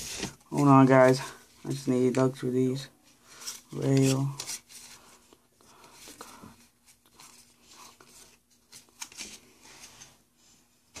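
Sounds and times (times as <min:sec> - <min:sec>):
trading cards rustling and clicking: 0:03.4 - 0:09.5.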